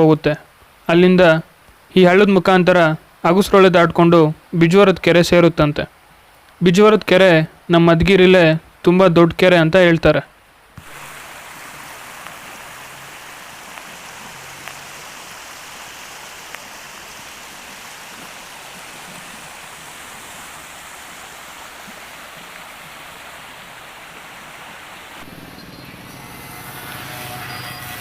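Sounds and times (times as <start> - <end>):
low steady hum: 10.1 - 28.0
stream water rushing: 10.8 - 28.0.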